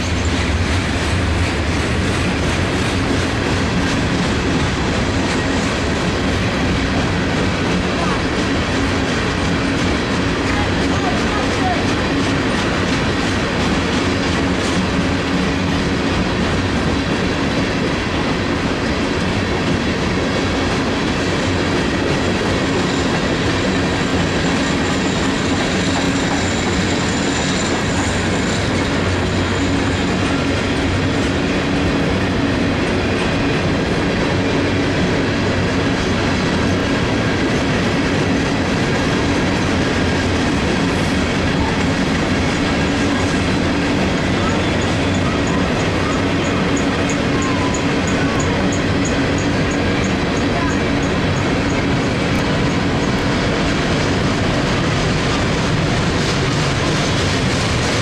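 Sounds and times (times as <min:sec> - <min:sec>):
steel wheels rolling on rail: 0:00.0 - 0:58.0.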